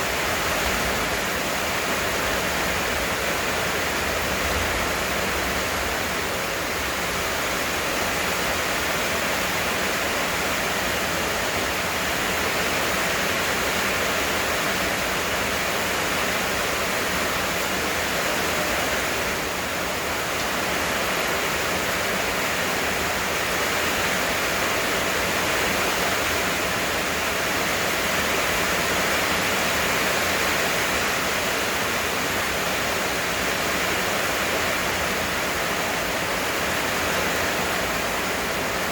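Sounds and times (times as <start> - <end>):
heavy rain downpour: 0.0 - 38.9.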